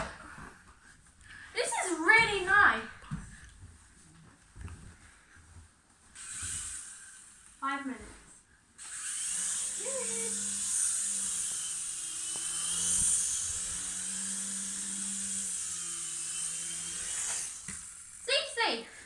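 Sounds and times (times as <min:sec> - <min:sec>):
toy helicopter motor whine: 0:06.2 - 0:07.7, 0:08.8 - 0:18.9.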